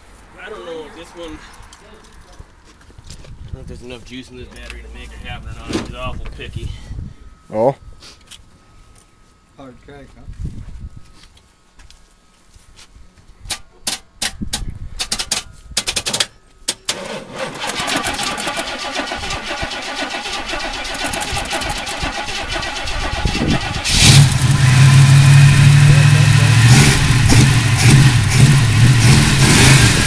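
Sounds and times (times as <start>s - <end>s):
starter motor cranking and clicking: 16.9s - 24.7s
engine running loudly: 23.2s - 30.0s.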